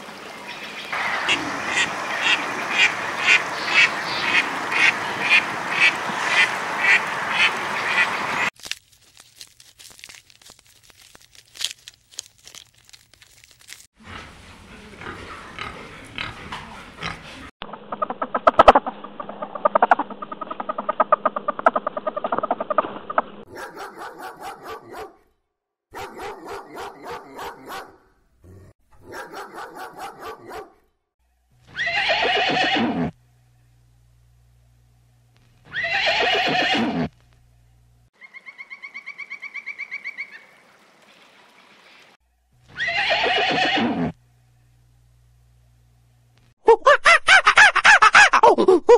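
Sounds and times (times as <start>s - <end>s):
horse neighing: 31.8s - 33.2s, 35.7s - 37.1s, 42.8s - 44.2s.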